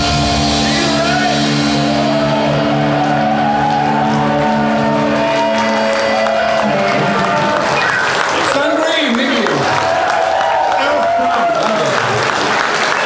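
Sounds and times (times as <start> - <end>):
rock band final chord ringing: 0.0 - 7.5
crowd shouting: 0.7 - 8.5.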